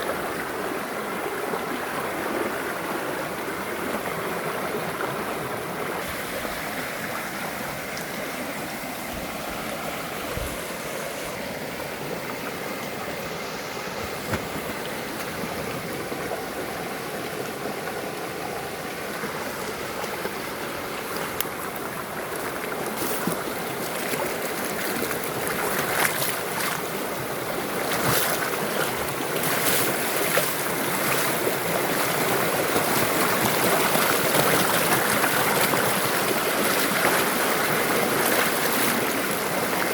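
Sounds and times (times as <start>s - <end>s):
waterfall rushing: 5.9s - 22.8s.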